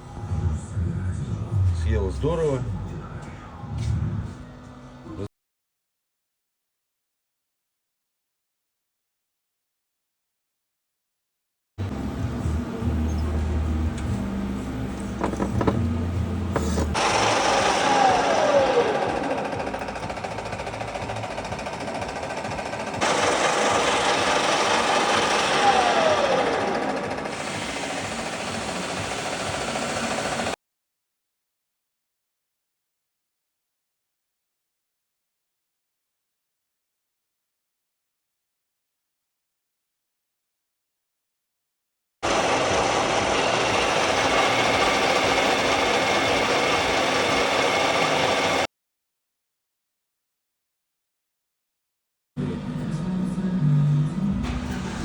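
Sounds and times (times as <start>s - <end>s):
power tool whirring: 14.9s - 30.6s, 42.2s - 48.7s
workshop machine rattling: 15.0s - 30.6s, 42.2s - 48.6s.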